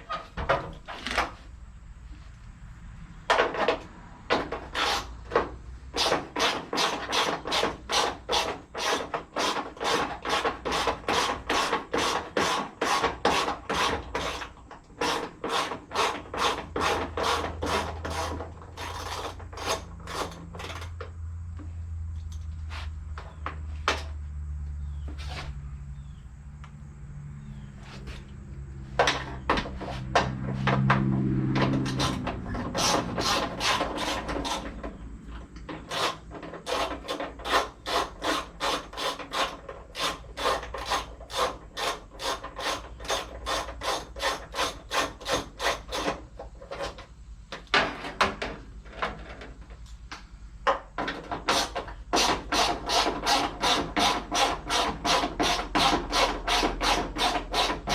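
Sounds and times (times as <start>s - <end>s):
hand tool rasping on metal: 4.6s - 5.2s, 6.0s - 20.9s, 31.6s - 35.0s, 35.8s - 47.0s, 51.2s - 57.9s.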